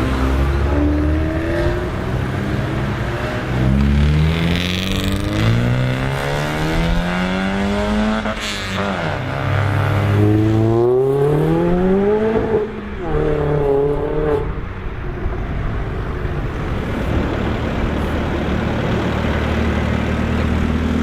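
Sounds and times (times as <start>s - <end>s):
car engine accelerating: 0.0s - 14.7s.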